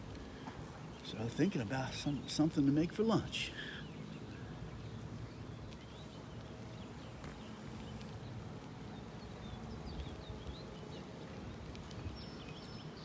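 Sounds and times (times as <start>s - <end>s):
small birds chirping: 0.2s - 13.0s
bicycle riding rumble: 3.5s - 13.0s.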